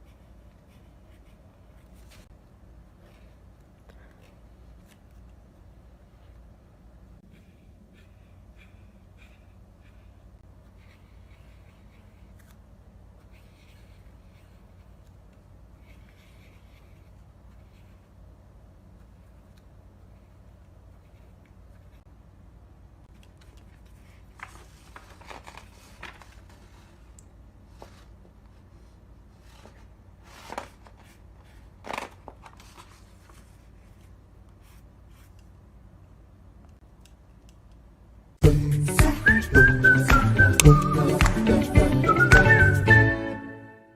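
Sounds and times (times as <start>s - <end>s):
low steady hum: 0.0s - 42.6s
paper scratching and rustling: 23.3s - 27.1s, 29.4s - 35.4s.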